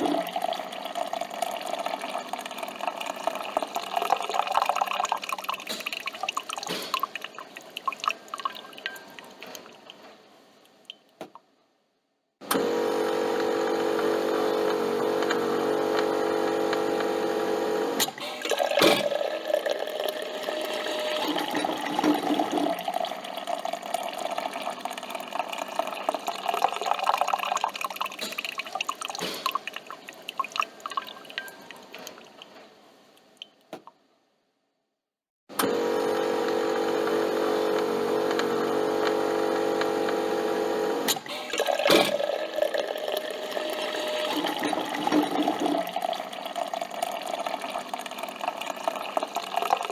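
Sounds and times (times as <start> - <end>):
coffee machine pump humming: 0.0 - 6.1, 12.4 - 29.2, 35.5 - 49.9
coffee dripping into cup: 0.0 - 10.0, 18.4 - 32.5, 41.5 - 49.9.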